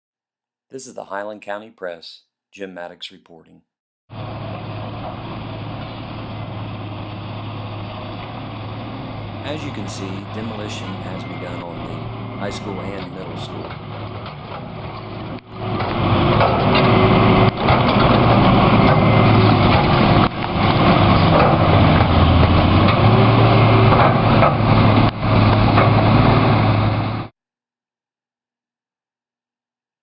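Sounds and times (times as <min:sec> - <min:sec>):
heavy machinery engine running: 0:04.1 - 0:27.3.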